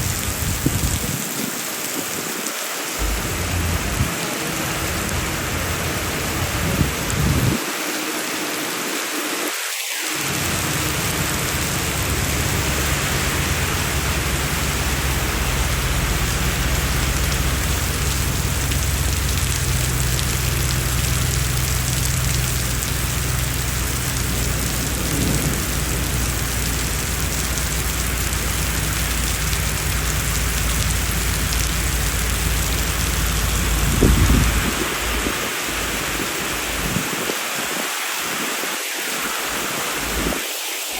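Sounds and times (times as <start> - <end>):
heavy rain falling: 0.0 - 40.9
deep low rumble: 3.0 - 7.6, 10.3 - 37.0.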